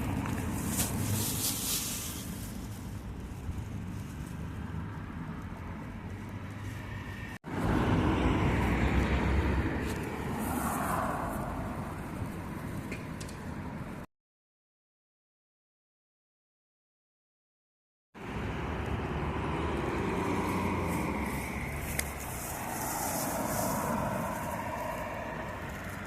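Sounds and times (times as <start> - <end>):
distant traffic noise: 0.0 - 14.0, 18.2 - 26.0
wind rumbling on microphone: 0.0 - 14.0.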